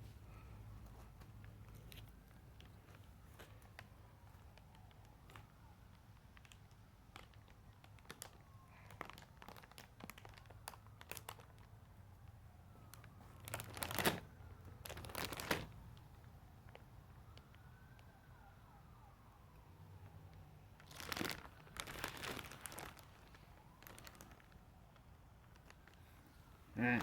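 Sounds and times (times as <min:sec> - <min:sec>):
packaging crinkling: 0:06.1 - 0:11.7, 0:12.8 - 0:15.8, 0:20.8 - 0:26.1.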